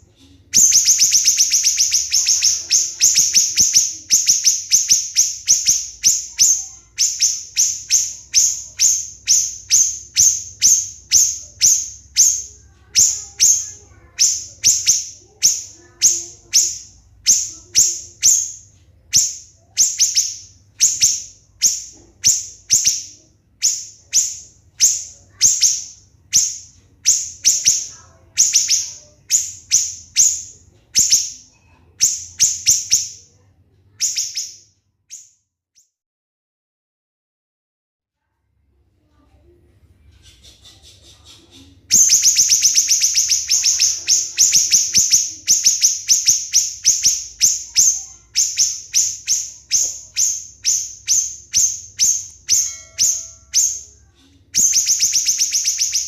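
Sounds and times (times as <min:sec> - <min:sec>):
songbird singing shrill notes: 0:00.5 - 0:33.2, 0:34.0 - 0:35.4, 0:41.9 - 0:56.0.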